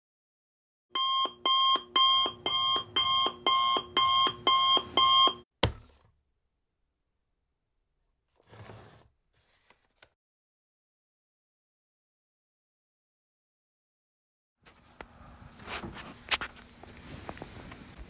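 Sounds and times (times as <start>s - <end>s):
electronic alarm beeping: 1.0s - 5.4s.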